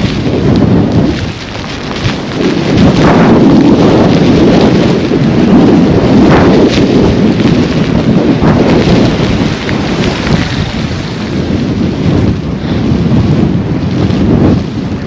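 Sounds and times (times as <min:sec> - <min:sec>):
blowing snow hiss: 0:00.0 - 0:15.0
wind buffeting microphone: 0:00.0 - 0:15.0.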